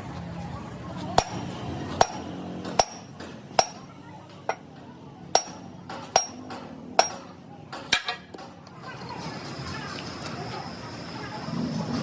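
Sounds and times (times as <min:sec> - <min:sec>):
hammer striking steel: 0:01.1 - 0:08.2.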